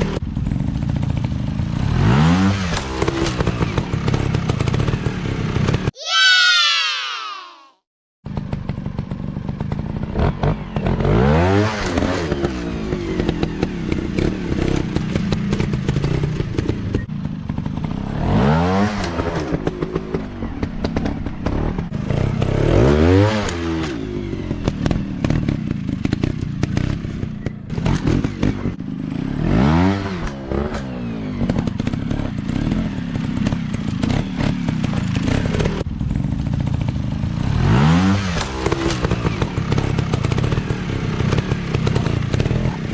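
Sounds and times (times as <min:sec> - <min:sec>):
dirt bike engines revving: 0:08.8 - 0:35.8, 0:36.8 - 0:42.9.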